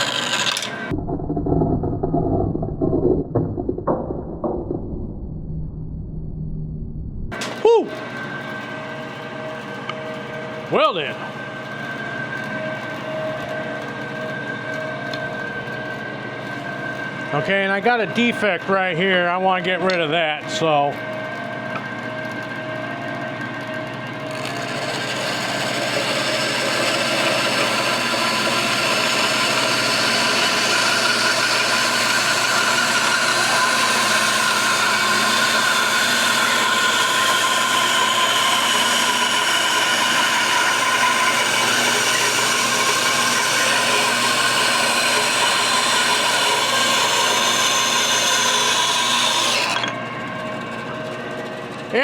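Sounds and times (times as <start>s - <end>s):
bandsaw cutting wood: 0.0s - 0.9s, 24.2s - 50.0s.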